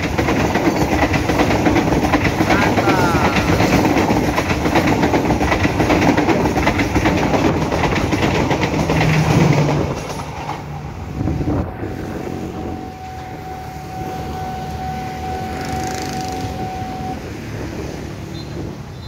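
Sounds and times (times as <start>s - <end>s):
train wheels clattering: 0.0s - 11.2s.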